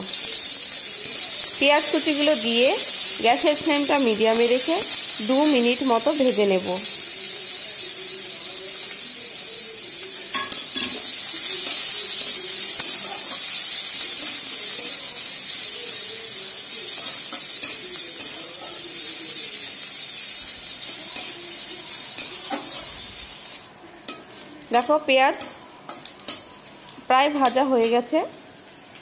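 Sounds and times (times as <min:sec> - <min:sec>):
onion sizzling in oil: 0:00.0 - 0:29.0.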